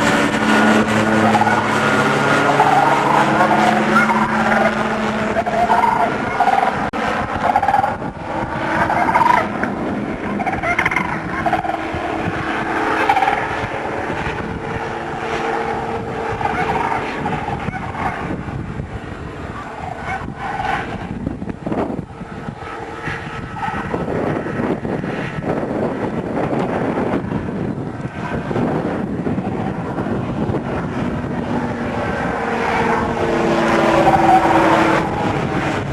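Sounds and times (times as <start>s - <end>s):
airplane engine running: 0.0s - 35.9s
wind noise: 0.0s - 35.9s
crane calls from loudspeaker: 1.2s - 1.8s, 2.4s - 8.0s, 8.8s - 9.5s, 10.3s - 11.9s, 13.0s - 13.5s, 16.4s - 18.2s.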